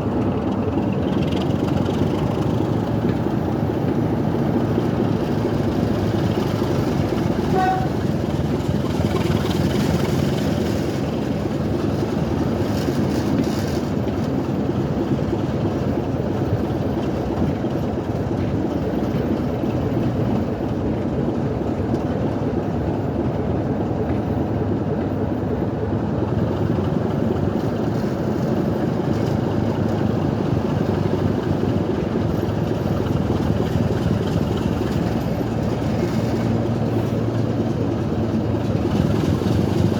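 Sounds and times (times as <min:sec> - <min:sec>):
train rumbling: 0:00.0 - 0:39.9
train toot: 0:07.2 - 0:08.4.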